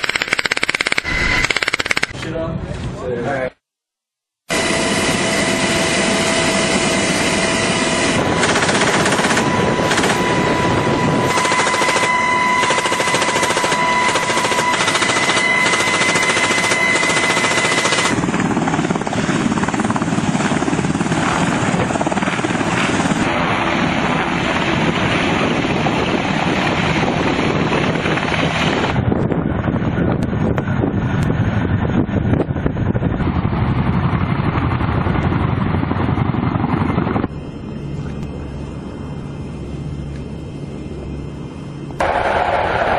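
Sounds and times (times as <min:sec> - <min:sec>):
high steady whining tones: 0:00.0 - 0:03.2, 0:04.5 - 0:33.2, 0:36.6 - 0:42.9
aircraft cabin noise: 0:04.5 - 0:31.2, 0:36.2 - 0:42.9.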